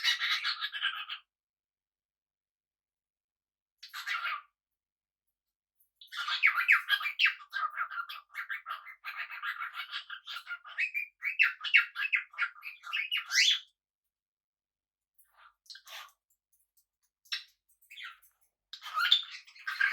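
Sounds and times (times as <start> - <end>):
parrots chirping and squawking: 0.0 - 1.3, 3.8 - 4.5, 6.0 - 13.7, 15.3 - 16.3, 17.2 - 19.9.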